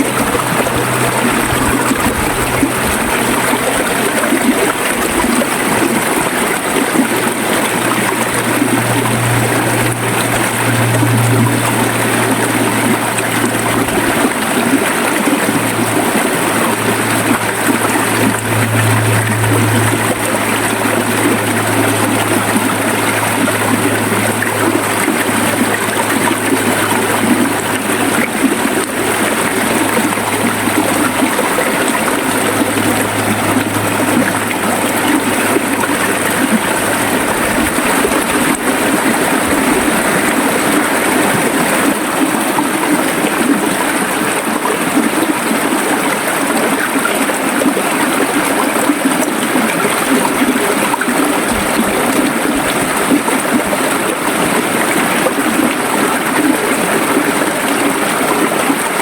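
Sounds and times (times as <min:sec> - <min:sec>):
low hum: 0:00.0 - 0:41.8
river water rushing: 0:00.0 - 0:59.0.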